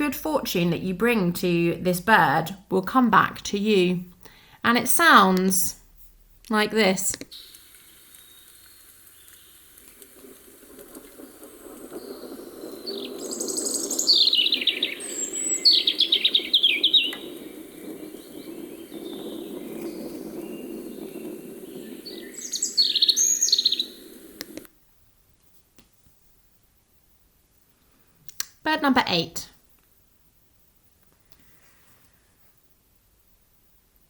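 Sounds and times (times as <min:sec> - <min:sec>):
robin singing: 0:12.9 - 0:24.4.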